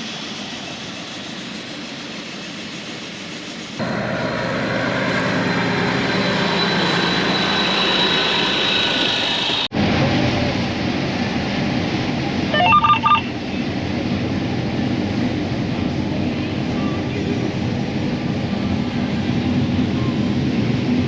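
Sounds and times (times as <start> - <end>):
electronic beeps: 12.6 - 13.3.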